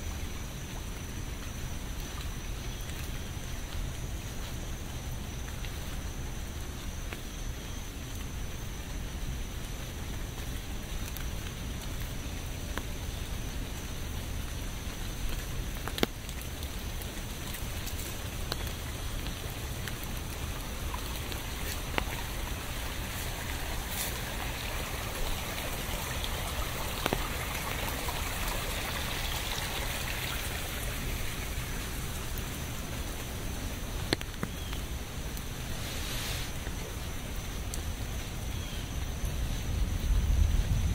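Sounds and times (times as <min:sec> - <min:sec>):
steady rain falling: 0:00.0 - 0:40.9
single raindrops ticking: 0:09.2 - 0:35.8, 0:36.5 - 0:40.7.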